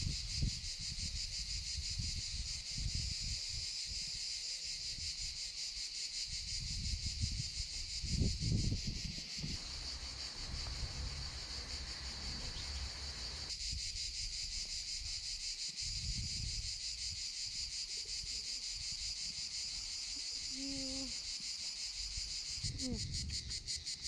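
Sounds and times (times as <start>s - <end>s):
wind rumbling on microphone: 0.0s - 4.1s, 6.3s - 13.5s, 15.8s - 17.2s, 22.6s - 23.8s
insects buzzing: 0.0s - 24.0s.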